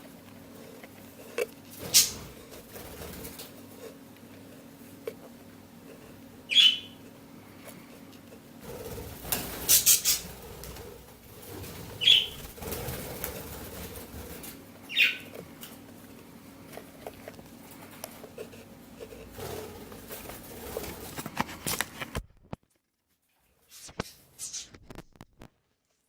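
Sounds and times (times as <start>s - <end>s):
scratching and rustling: 0.0s - 6.3s, 7.5s - 25.6s
bird chick calls: 6.5s - 7.0s, 12.0s - 12.4s, 14.9s - 15.3s
wing flaps: 8.6s - 14.7s, 19.2s - 21.8s.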